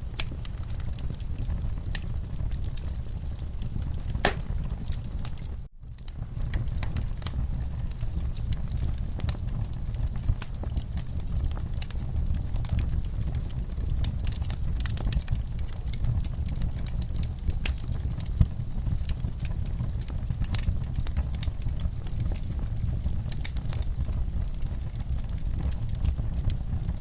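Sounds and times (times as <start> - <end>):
low rumble of burning: 0.0 - 27.0
wood fire crackling: 0.0 - 27.0
sharp pops: 4.2 - 4.5.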